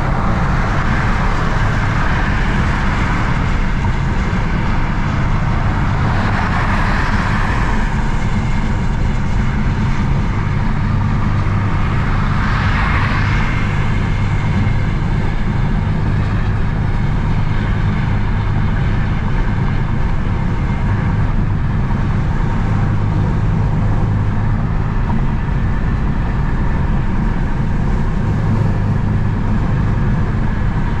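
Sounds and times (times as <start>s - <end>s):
car engine hum: 0.0s - 31.0s
road and tyre noise: 0.0s - 31.0s.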